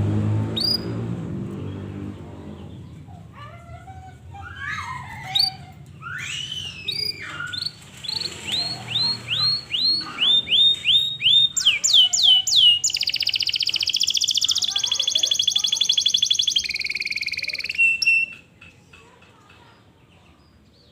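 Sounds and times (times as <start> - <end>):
canary singing: 0.5 - 3.2, 4.6 - 18.6.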